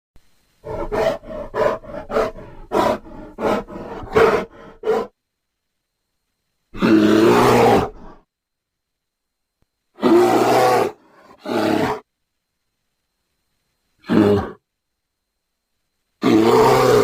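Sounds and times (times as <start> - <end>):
animal roar: 0.6 - 5.1, 6.8 - 8.2, 10.0 - 12.0, 14.0 - 14.6, 16.2 - 17.0
large animal grunting: 0.6 - 5.1.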